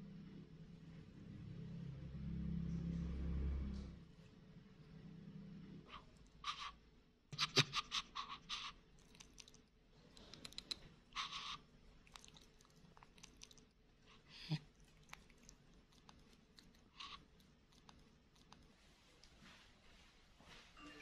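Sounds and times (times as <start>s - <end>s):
monkey mouth clicking and crunching: 7.4s - 13.8s, 14.4s - 18.7s.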